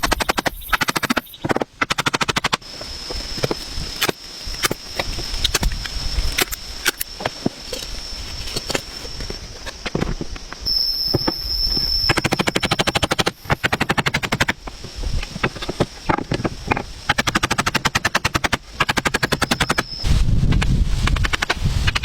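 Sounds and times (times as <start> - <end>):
thin high whine: 10.6 - 13.6.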